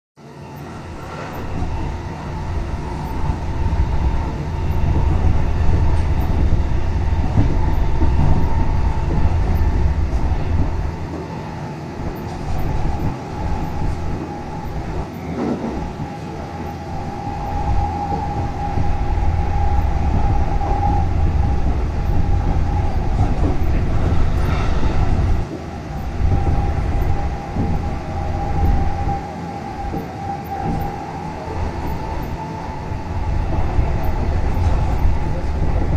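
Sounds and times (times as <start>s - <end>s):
train wheels rumbling on rail: 0.2s - 35.9s
train whine: 0.2s - 35.9s.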